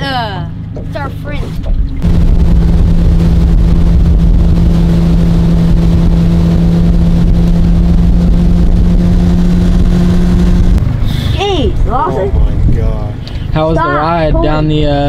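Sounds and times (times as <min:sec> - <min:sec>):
boat engine running: 0:00.0 - 0:15.0
dense rushing noise: 0:02.0 - 0:13.6.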